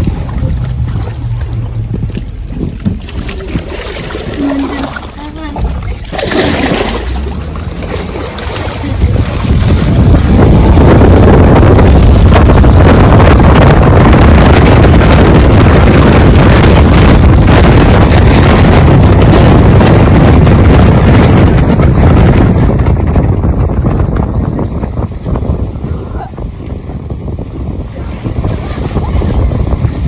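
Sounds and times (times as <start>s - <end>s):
truck road noise: 0.0s - 30.0s
wind buffeting microphone: 0.0s - 30.0s.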